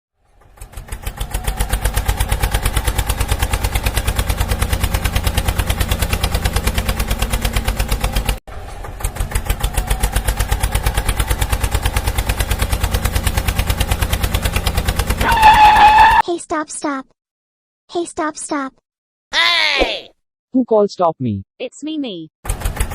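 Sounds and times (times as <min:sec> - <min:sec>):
tractor engine running: 0:00.2 - 0:16.2, 0:22.4 - 0:22.9.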